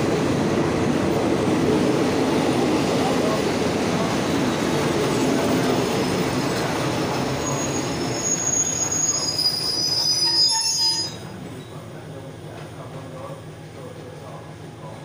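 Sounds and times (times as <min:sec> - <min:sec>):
train coaches rolling: 0:00.0 - 0:15.0
wheel and brake squeal: 0:07.4 - 0:11.8.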